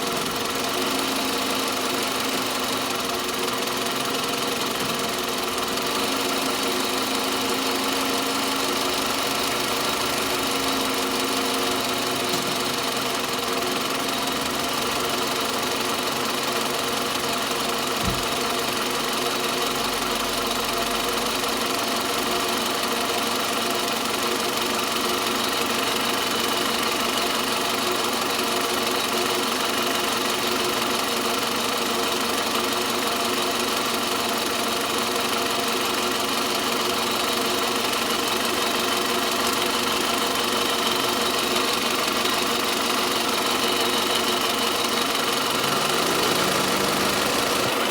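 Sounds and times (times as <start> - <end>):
car engine running: 35.9 - 47.9.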